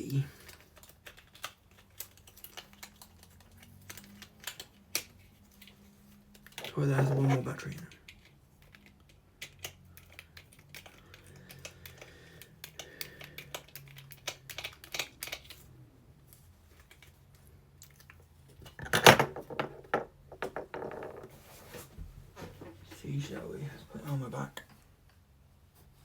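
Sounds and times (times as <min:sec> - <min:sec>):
plastic clicks and rattles: 0:00.4 - 0:15.7.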